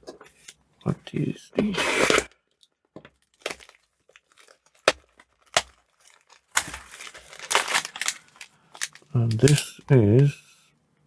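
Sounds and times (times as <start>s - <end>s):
plastic packaging crackling: 2.5s - 10.3s
plastic crinkling rustle: 3.2s - 10.3s.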